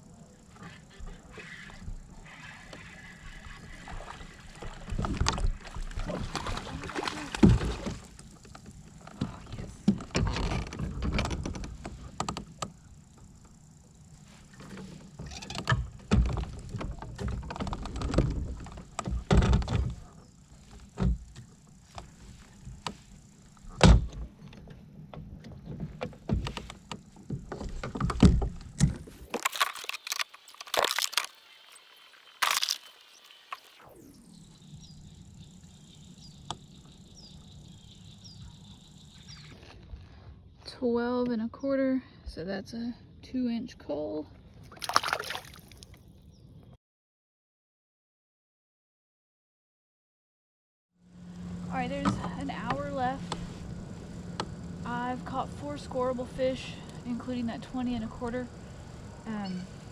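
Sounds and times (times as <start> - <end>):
water and hull rumble: 3.4 - 12.2
knocks and thumps on kayak: 4.7 - 11.8.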